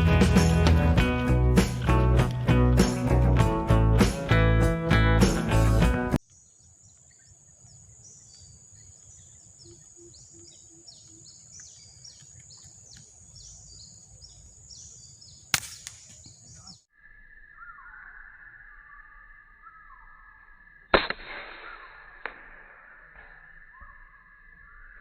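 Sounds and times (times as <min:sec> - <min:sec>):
birds chirping: 0:05.6 - 0:20.9, 0:21.6 - 0:25.0
air rifle shot: 0:15.5 - 0:16.2, 0:20.9 - 0:22.8.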